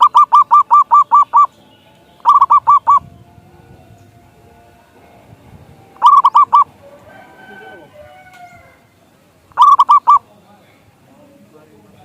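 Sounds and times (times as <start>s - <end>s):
dove cooing: 0.0s - 1.6s, 2.2s - 4.2s, 5.9s - 8.9s, 9.5s - 10.3s.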